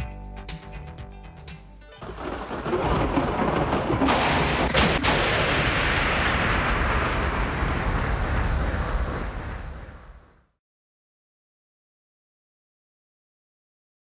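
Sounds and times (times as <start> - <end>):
thunder rumbling and cracking: 2.0 - 10.5.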